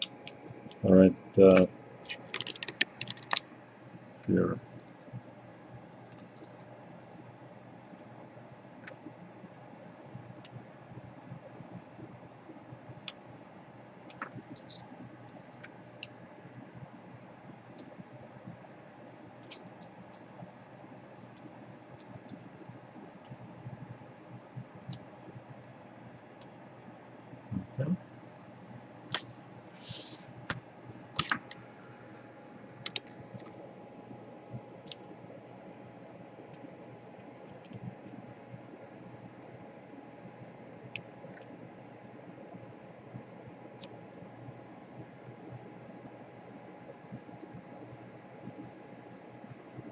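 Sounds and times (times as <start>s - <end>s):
faint steady hum: 0.0s - 49.9s
short scratchy hiss: 29.7s - 30.3s.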